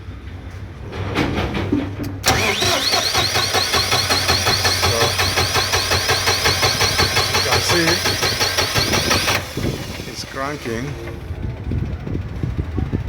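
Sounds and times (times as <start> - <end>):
diesel engine cranking: 1.0 - 13.0
starter motor whine: 2.2 - 11.5.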